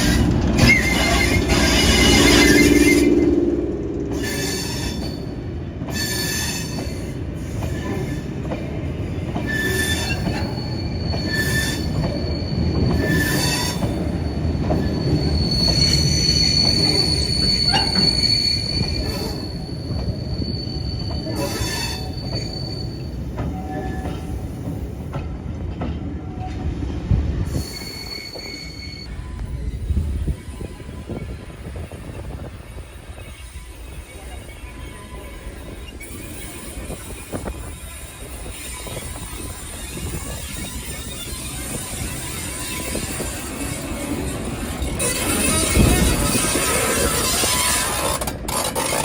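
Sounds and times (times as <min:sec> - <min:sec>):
high wheel squeal: 0:00.0 - 0:03.5, 0:04.1 - 0:08.3, 0:09.4 - 0:24.5, 0:27.5 - 0:49.0
train rumbling on track: 0:00.0 - 0:49.0
knocks of train on track: 0:05.8 - 0:15.0, 0:23.2 - 0:27.3.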